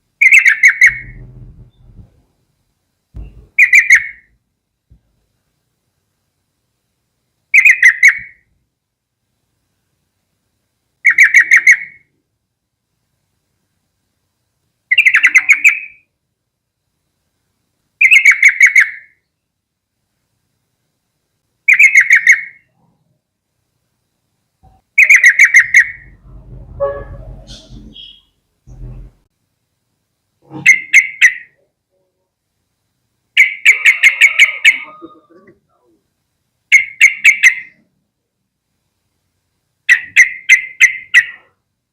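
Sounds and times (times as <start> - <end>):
bird chattering calls: 0.2 - 2.1, 3.2 - 4.3, 11.0 - 12.0, 14.9 - 16.0, 21.7 - 22.7, 25.0 - 26.2, 27.4 - 28.9, 30.5 - 31.6
bird singing sharp notes: 0.2 - 2.1, 3.2 - 4.3, 26.9 - 28.9.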